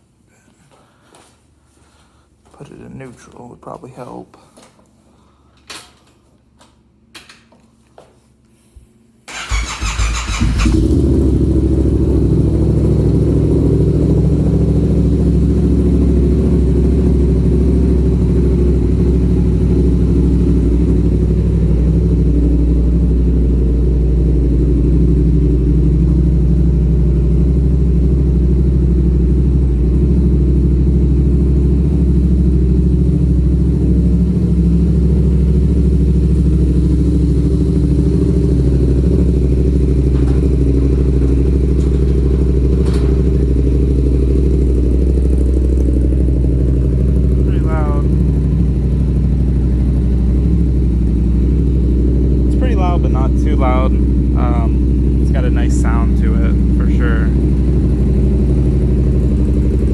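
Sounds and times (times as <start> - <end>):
starter motor cranking: 9.3 - 11.0
motorcycle engine idling: 9.3 - 59.9.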